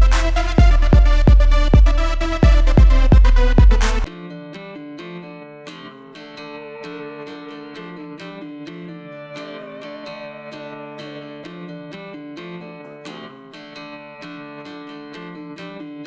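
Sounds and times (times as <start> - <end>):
strummed guitar music: 0.0 - 16.0.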